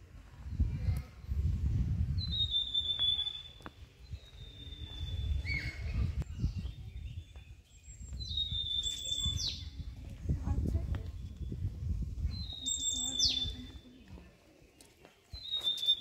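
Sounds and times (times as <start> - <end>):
low microphone rumble: 0.0 - 2.5, 9.6 - 13.7
bird whistling: 2.3 - 3.6, 15.4 - 16.0.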